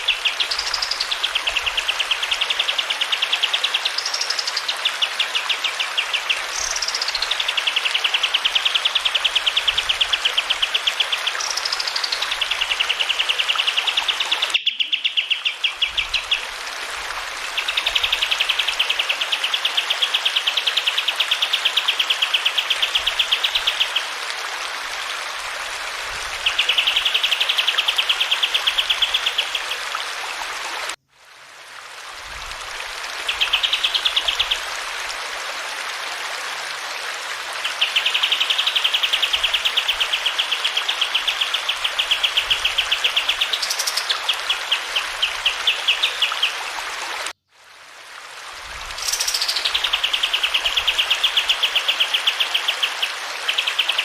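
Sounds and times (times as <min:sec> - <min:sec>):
running water hiss: 0:00.0 - 0:54.0
songbird singing fast trills: 0:11.2 - 0:16.4, 0:37.8 - 0:46.5, 0:49.0 - 0:54.0.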